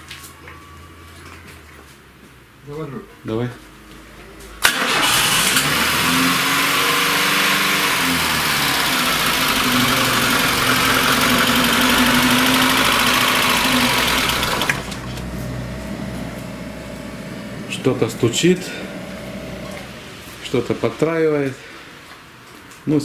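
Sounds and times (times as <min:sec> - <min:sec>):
car engine knocking and misfiring: 0:04.6 - 0:20.8.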